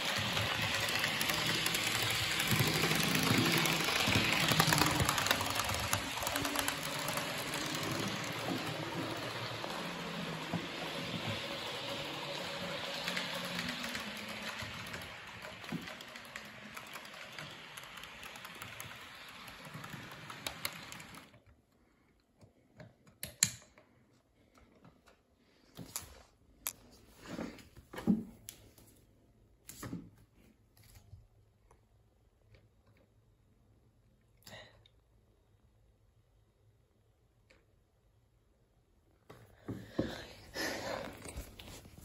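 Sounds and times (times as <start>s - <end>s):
scattered clicks and knocks: 0.0s - 21.3s
electric train rail noise: 0.0s - 21.4s.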